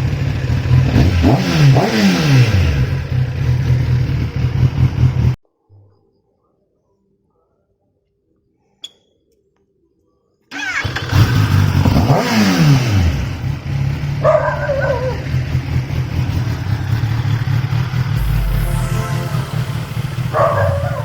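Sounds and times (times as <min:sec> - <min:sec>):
motorcycle engine starting and revving: 0:00.0 - 0:05.4, 0:10.6 - 0:19.0.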